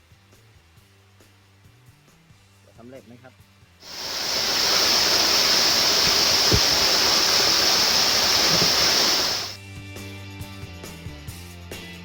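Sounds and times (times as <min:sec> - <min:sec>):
waterfall rushing: 0:03.8 - 0:09.6.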